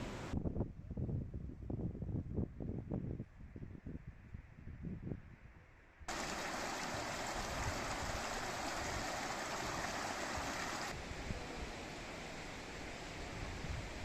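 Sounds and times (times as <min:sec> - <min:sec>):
flowing water rushing: 0:06.1 - 0:11.1.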